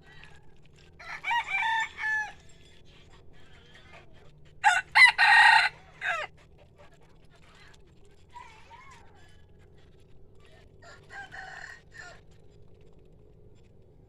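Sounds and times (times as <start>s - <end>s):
rooster crowing: 1.0s - 2.5s, 4.6s - 6.3s, 10.8s - 12.3s.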